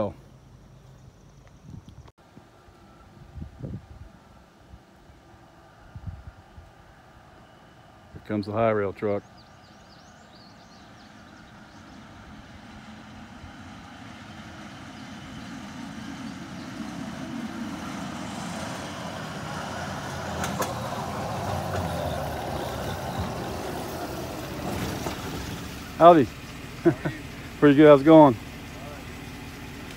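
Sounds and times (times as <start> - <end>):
pickup truck running on rails: 16.2 - 27.0.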